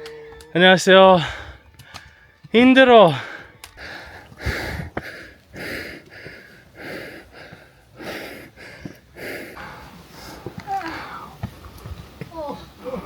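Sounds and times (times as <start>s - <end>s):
heavy breathing: 1.2s - 2.4s, 3.1s - 11.4s.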